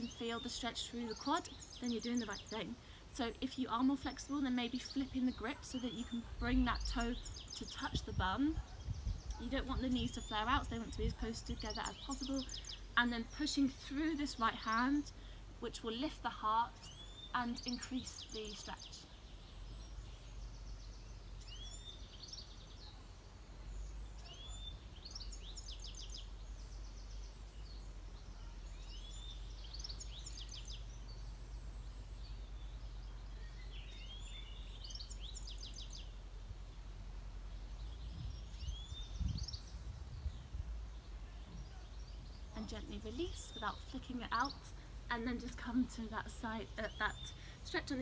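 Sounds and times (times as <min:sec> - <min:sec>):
songbird singing: 0:00.0 - 0:48.0
steady low rumble: 0:36.1 - 0:41.4
low bumps: 0:37.7 - 0:44.4.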